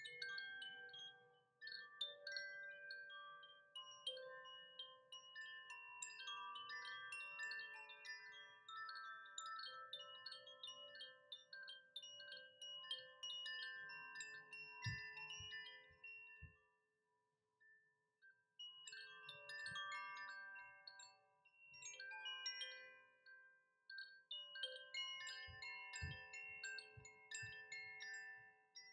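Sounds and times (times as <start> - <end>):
wind chime jingling: 12.0 - 16.4, 18.7 - 21.2, 21.8 - 23.0, 24.3 - 28.9.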